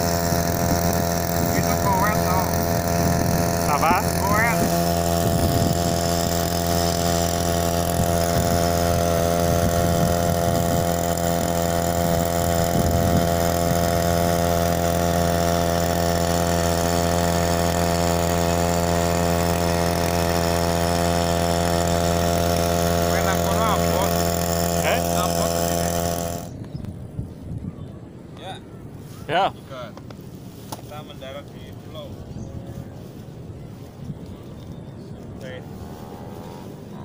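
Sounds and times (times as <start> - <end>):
outboard motor running: 0.0 - 26.7.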